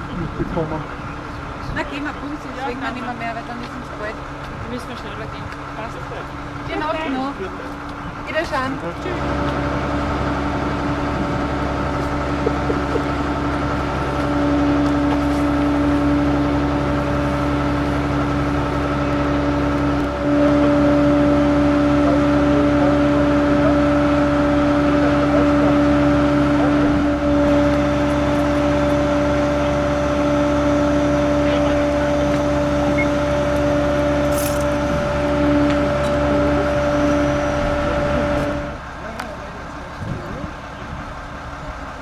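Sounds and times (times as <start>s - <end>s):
motor running with whine: 0.0s - 39.2s.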